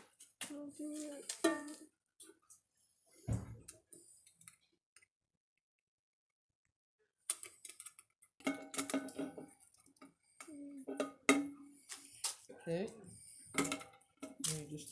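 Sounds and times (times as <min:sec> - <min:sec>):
thump: 0:03.3 - 0:03.6
wire and tin can clicking: 0:07.3 - 0:09.4.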